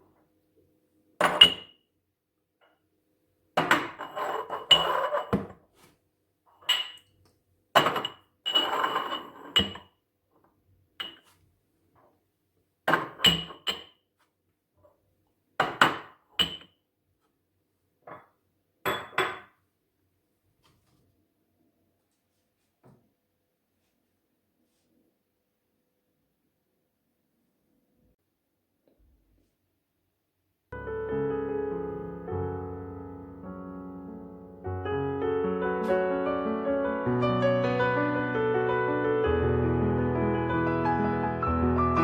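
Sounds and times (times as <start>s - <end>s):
dishes clinking and clattering: 1.2s - 1.7s, 3.6s - 5.6s, 6.6s - 7.1s, 7.8s - 9.9s, 11.0s - 11.3s, 12.9s - 13.9s, 15.6s - 16.7s, 18.9s - 19.5s.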